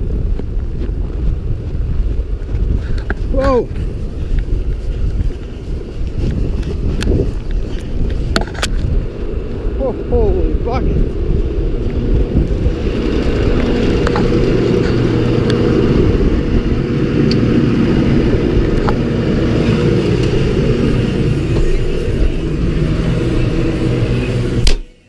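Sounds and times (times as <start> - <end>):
tractor diesel engine droning: 9.0 - 25.0.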